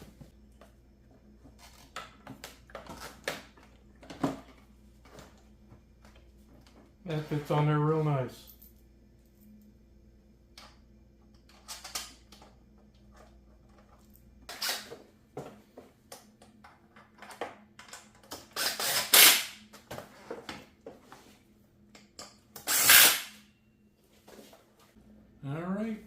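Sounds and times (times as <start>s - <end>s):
clicks and knocks of parts: 16.1s - 20.6s.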